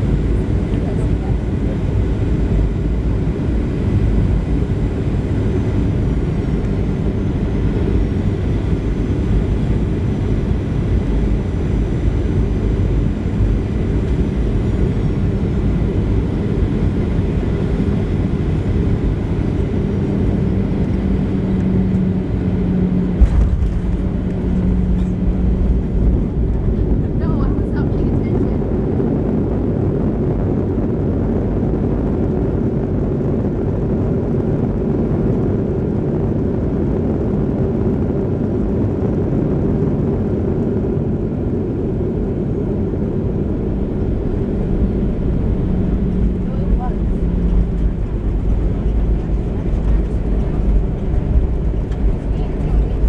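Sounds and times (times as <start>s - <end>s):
airplane cabin engine noise: 0.0s - 53.0s
low hum: 0.0s - 53.0s
sharp thump: 23.2s - 24.1s.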